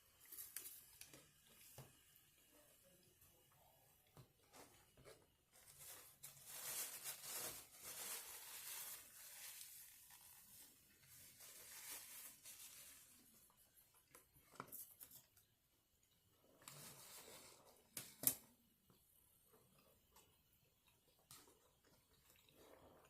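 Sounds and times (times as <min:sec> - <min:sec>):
crunching eating sounds: 0:19.5 - 0:23.0.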